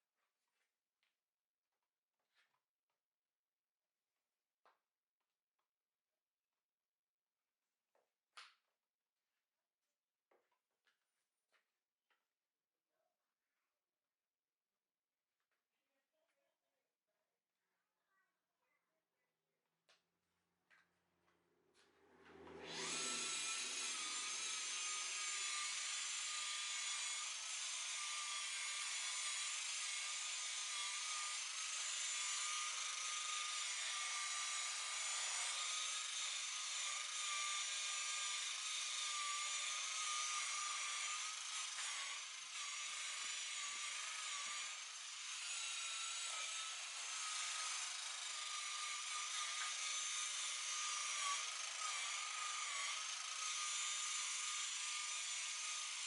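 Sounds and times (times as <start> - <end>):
electric polisher whining: 21.8 - 56.0.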